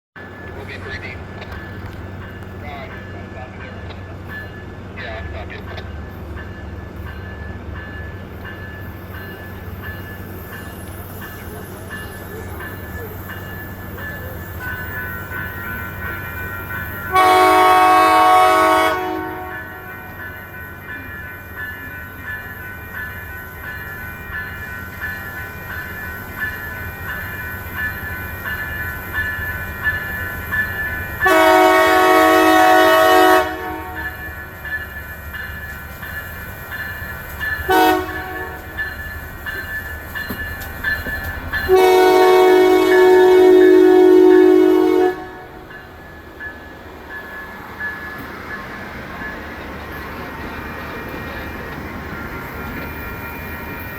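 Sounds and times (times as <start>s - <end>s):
train rumbling: 0.2s - 53.9s
train air horn blasts: 17.1s - 20.1s, 31.2s - 34.2s, 37.7s - 38.7s, 41.7s - 45.6s.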